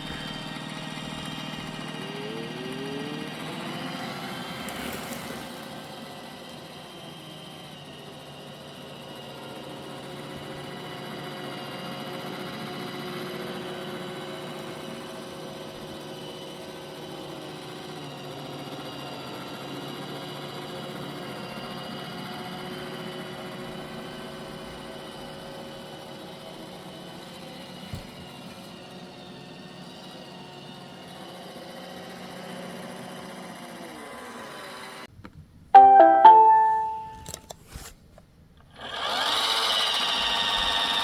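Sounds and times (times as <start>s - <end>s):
robot vacuum whirring: 0.0s - 5.8s.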